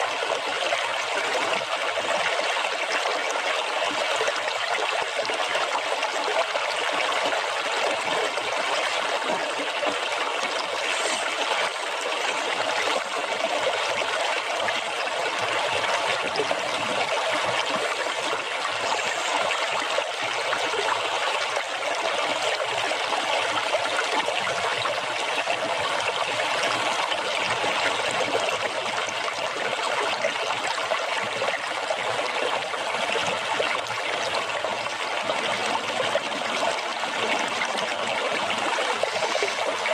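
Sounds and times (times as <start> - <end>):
running water splashing: 8.3 - 14.0.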